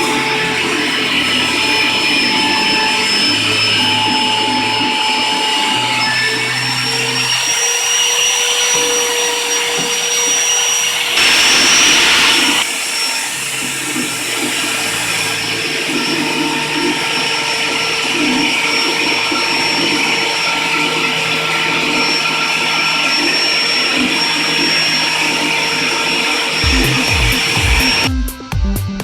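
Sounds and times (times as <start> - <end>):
machine drive humming: 0.0 - 28.2
router spindle high whine: 0.0 - 28.2
loud hiss: 7.4 - 19.0.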